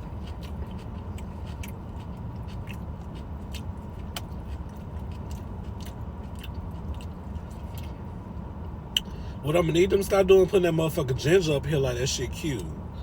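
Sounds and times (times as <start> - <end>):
chewing crunches: 0.0 - 8.0
steady low rumble: 0.0 - 13.0.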